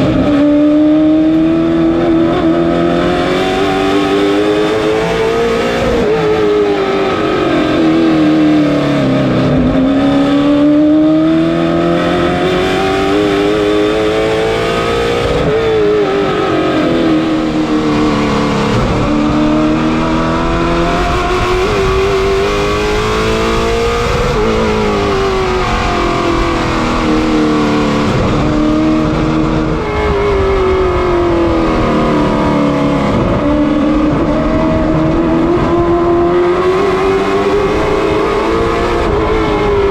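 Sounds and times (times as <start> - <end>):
race car engine accelerating: 0.0 - 39.9.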